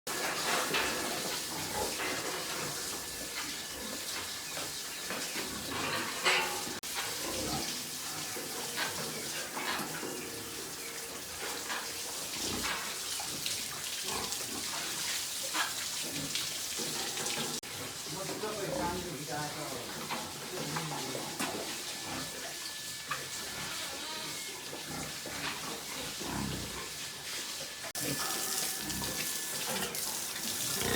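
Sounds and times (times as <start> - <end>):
pigs in a pen: 0.1 - 30.9.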